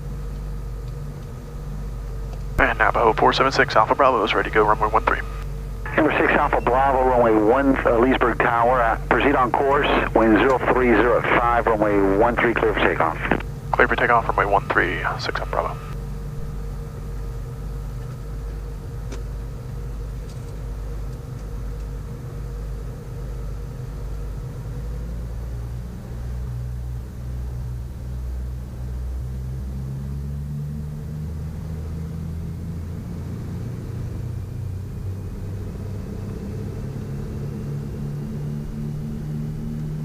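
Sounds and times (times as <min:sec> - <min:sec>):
twin piston aircraft engines droning: 0:00.0 - 0:40.0.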